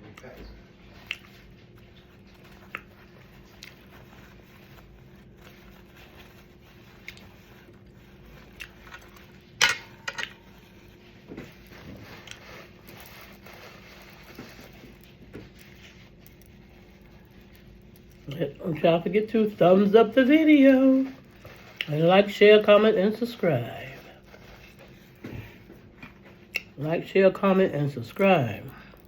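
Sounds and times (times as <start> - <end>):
chewing and wet mouth noises: 0.0 - 9.6, 10.2 - 18.6, 23.8 - 26.8.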